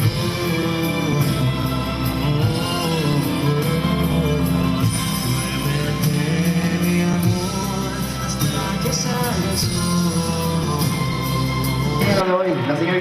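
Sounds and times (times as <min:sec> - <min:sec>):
song with singing bass and beat: 0:00.0 - 0:13.0.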